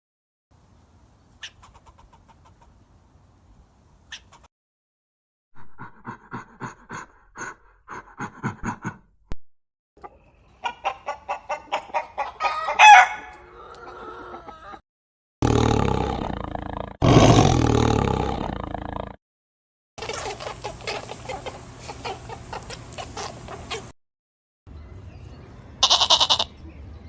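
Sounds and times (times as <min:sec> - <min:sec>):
chickens clucking: 0:01.4 - 0:02.8, 0:04.1 - 0:04.5, 0:10.0 - 0:14.8, 0:20.0 - 0:24.0.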